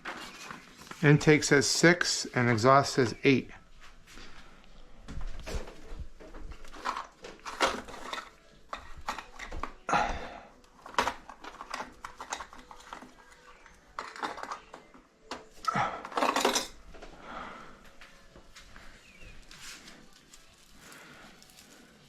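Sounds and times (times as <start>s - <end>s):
metal hand tools clinking: 16.0s - 16.8s.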